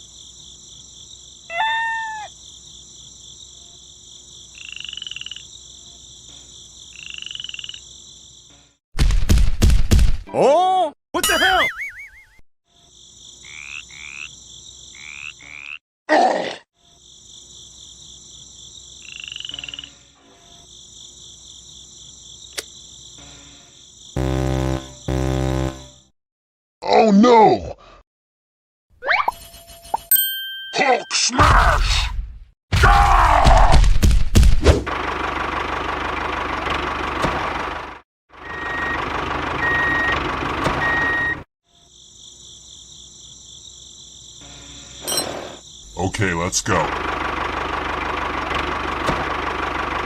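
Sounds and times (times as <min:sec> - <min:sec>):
frogs chirping in chorus: 0:00.0 - 0:08.5, 0:12.7 - 0:15.8, 0:16.8 - 0:24.1
sharp click: 0:22.5 - 0:22.7
tractor engine running: 0:34.9 - 0:41.4, 0:46.6 - 0:50.0
reversing beeper: 0:38.4 - 0:40.2, 0:40.8 - 0:41.4.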